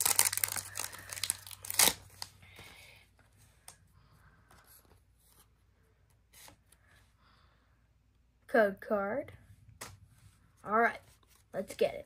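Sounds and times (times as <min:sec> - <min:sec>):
foil wrapper crinkling: 0:00.0 - 0:02.3.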